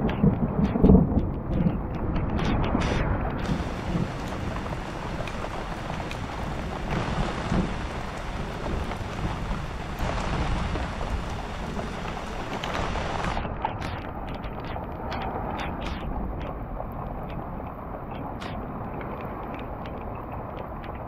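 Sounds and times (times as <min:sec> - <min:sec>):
individual raindrops ticking: 0:00.0 - 0:21.0
heavy rain hissing: 0:02.4 - 0:14.8.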